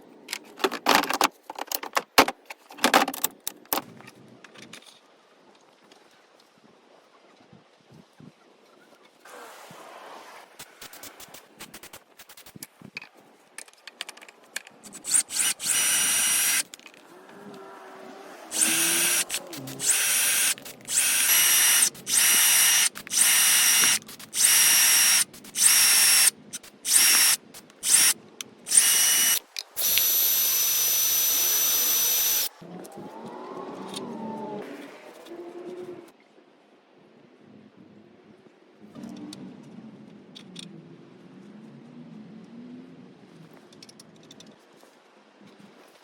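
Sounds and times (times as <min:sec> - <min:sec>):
power drill whining: 0:14.9 - 0:16.7, 0:18.5 - 0:32.5.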